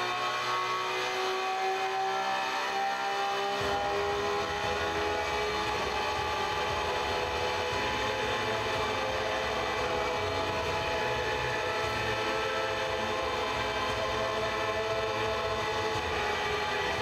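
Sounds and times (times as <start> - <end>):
engine revving at full throttle: 0.0 - 17.0.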